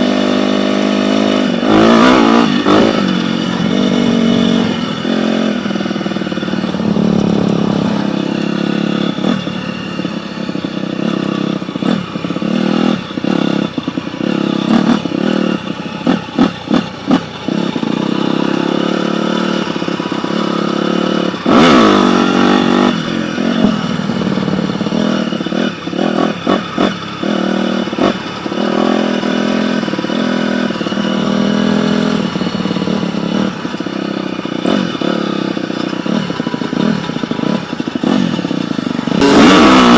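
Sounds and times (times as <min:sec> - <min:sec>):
dirt bike engine revving: 0:00.0 - 0:39.9
loud rush: 0:01.6 - 0:09.4.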